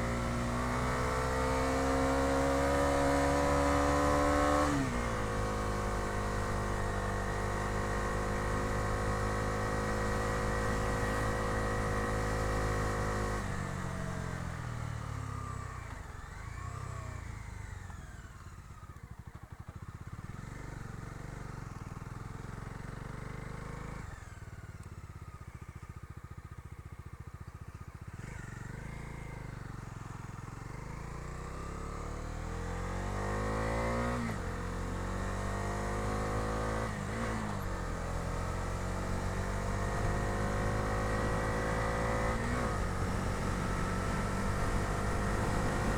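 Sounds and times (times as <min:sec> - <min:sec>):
motorcycle engine revving: 0:00.0 - 0:15.5, 0:28.0 - 0:45.9.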